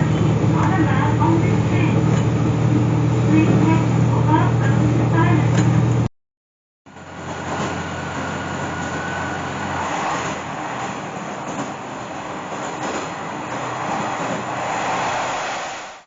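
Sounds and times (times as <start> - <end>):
low hum: 0.0 - 6.1
railcar running on rails: 0.0 - 6.1, 6.9 - 16.0.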